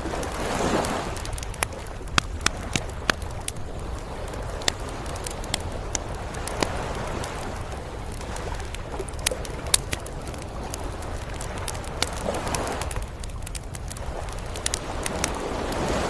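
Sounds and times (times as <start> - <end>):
campfire crackling and popping: 0.0 - 16.0
sea surf rumble: 0.0 - 16.0.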